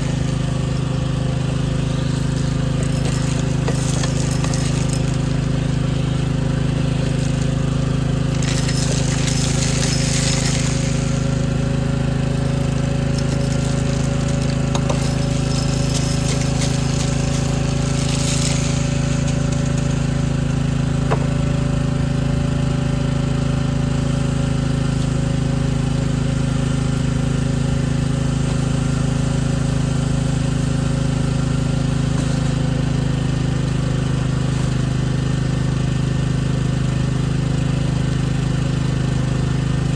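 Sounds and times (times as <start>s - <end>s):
bursts of hiss: 0.0s - 21.4s
machine droning: 0.0s - 37.0s.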